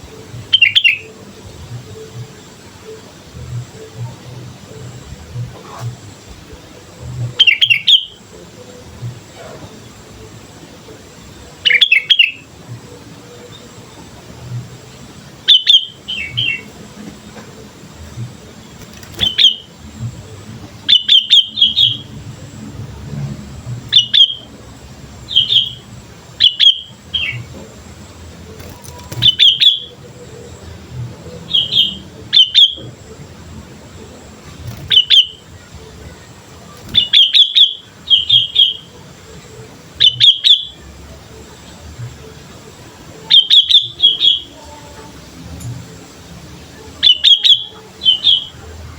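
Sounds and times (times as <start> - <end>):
bulbul chirping: 18.8 - 20.3, 23.9 - 24.6, 25.2 - 27.6, 28.4 - 30.7, 34.6 - 35.6, 36.7 - 38.9.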